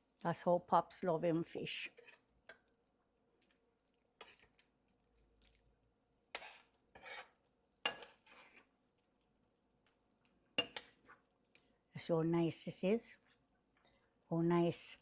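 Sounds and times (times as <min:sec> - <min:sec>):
spoon clinking against pot: 0:10.6 - 0:10.9.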